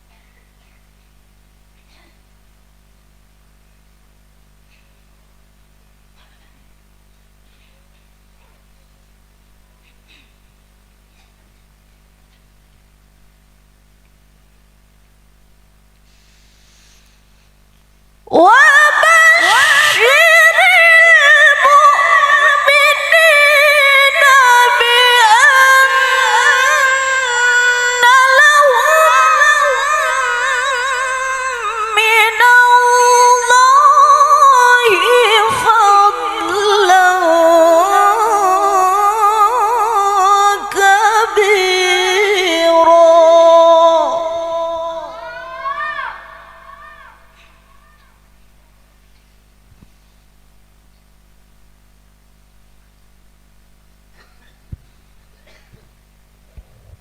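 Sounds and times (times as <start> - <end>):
woman chanting melodically: 18.3 - 48.8.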